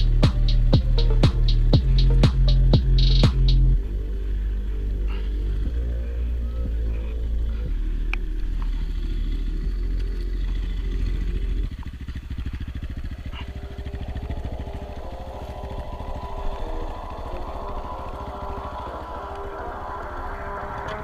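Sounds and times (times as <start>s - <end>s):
loud low rumble: 0.0s - 21.0s
small motorcycle engine putter: 8.6s - 14.8s.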